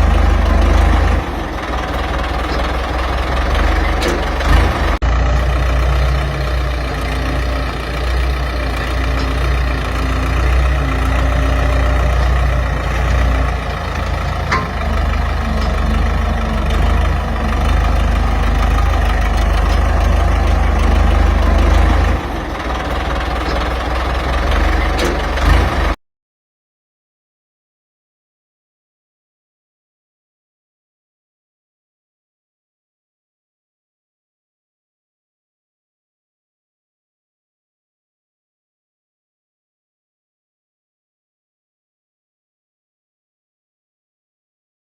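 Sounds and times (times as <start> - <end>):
tractor diesel engine rumbling: 0.0 - 26.0.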